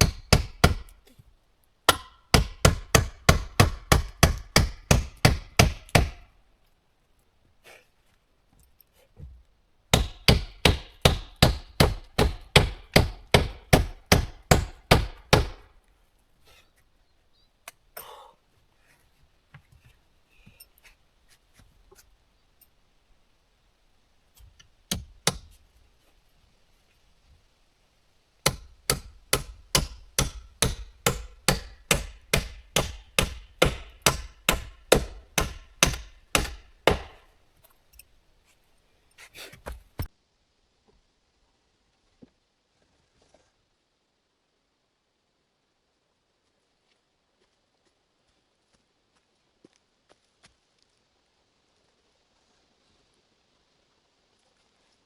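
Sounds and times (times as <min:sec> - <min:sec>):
tool striking wood: 0:00.0 - 0:01.0, 0:01.9 - 0:06.2, 0:09.2 - 0:15.7, 0:24.9 - 0:25.6, 0:28.4 - 0:37.3.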